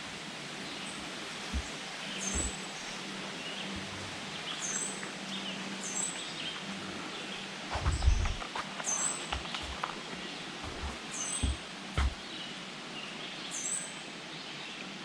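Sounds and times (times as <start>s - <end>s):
faint outdoor hiss: 0.0s - 15.0s
bird chirping: 0.7s - 3.8s
low bumps and rustles: 1.4s - 3.0s, 7.7s - 12.2s.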